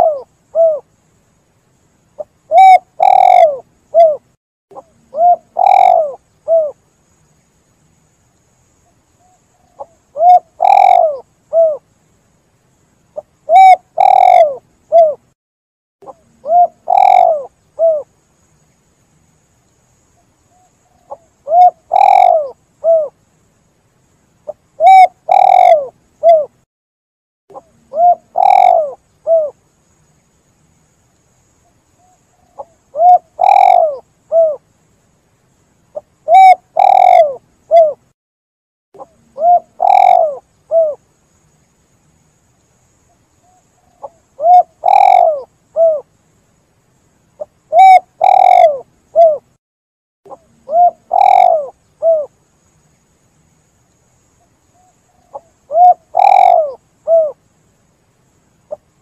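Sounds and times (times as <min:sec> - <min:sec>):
dove cooing: 0:00.0 - 0:00.8, 0:02.2 - 0:06.8, 0:09.2 - 0:11.8, 0:13.2 - 0:15.2, 0:16.0 - 0:18.1, 0:20.6 - 0:23.2, 0:24.5 - 0:26.6, 0:27.5 - 0:29.6, 0:32.0 - 0:34.6, 0:36.0 - 0:38.0, 0:39.0 - 0:41.0, 0:43.5 - 0:46.1, 0:47.4 - 0:49.5, 0:50.3 - 0:52.3, 0:54.8 - 0:57.4.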